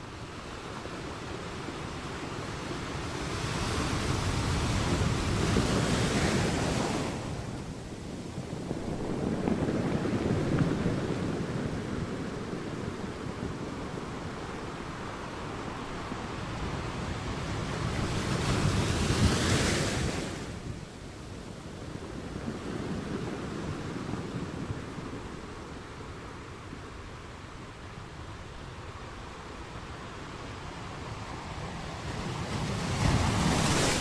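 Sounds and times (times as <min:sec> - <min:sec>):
sea waves breaking on shore: 0:00.7 - 0:21.0, 0:29.7 - 0:34.0.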